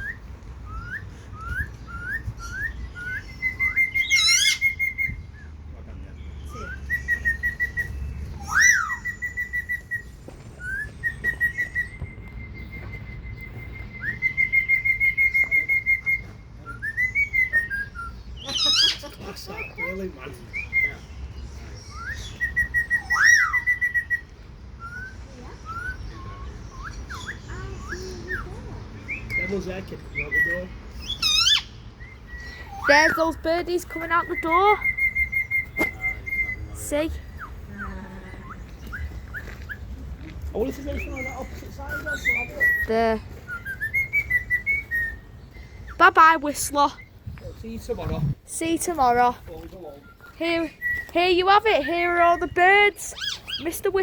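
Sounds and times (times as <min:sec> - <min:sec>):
loud sweeping bird call: 0:00.0 - 0:05.6, 0:06.3 - 0:40.0
bird whistling song: 0:00.0 - 0:54.0.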